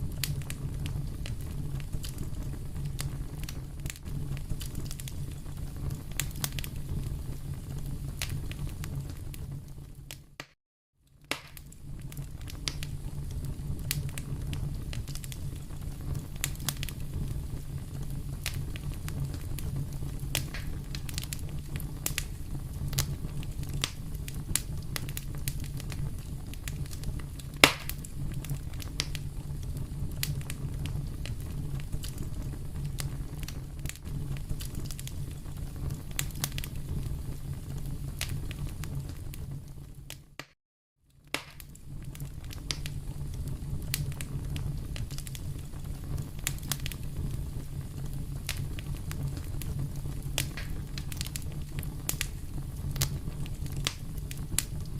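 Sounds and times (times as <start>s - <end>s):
fireplace fire crackling: 0.0s - 54.9s
sharp pops and snaps: 8.2s - 8.4s, 10.1s - 13.0s, 18.3s - 18.9s, 20.3s - 26.0s, 26.7s - 29.3s, 40.1s - 40.6s, 41.2s - 41.8s, 42.4s - 43.0s, 48.4s - 49.4s, 50.4s - 52.4s, 53.0s - 54.9s.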